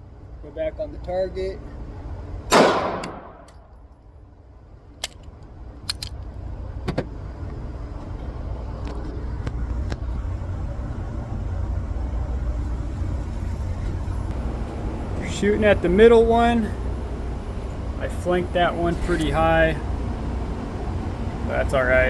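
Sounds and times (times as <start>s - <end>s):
low mechanical rumble: 0.0s - 22.0s
sharp clicks and knocks: 5.0s - 7.1s.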